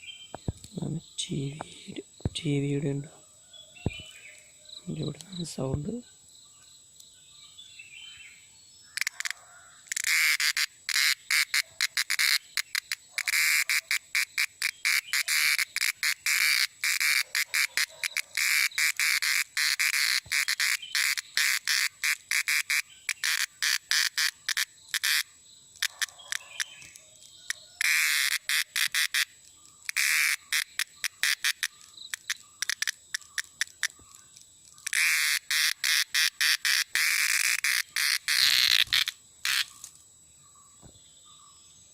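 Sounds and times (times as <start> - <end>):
cicada buzzing: 8.9 - 40.0.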